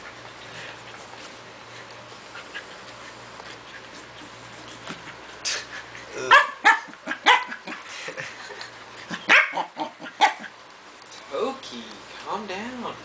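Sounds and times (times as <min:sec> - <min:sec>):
dog barking and yipping: 0:06.3 - 0:07.8, 0:09.2 - 0:10.6.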